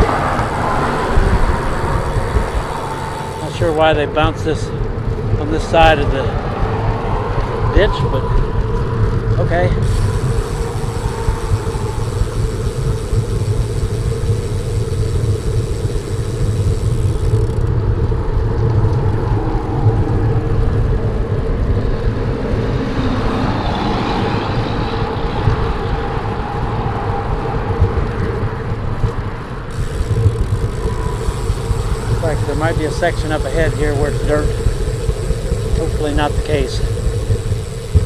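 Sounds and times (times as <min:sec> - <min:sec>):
bicycle tyres on concrete: 0:00.0 - 0:38.0
highway traffic: 0:00.0 - 0:38.0
wind buffeting microphone: 0:00.0 - 0:38.0.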